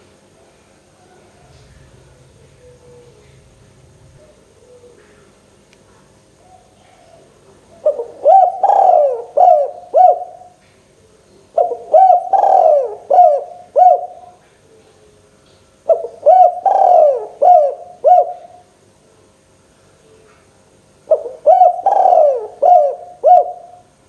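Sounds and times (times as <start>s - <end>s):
dove cooing: 0.9s - 5.5s, 6.3s - 15.2s, 15.9s - 18.7s, 21.1s - 23.9s.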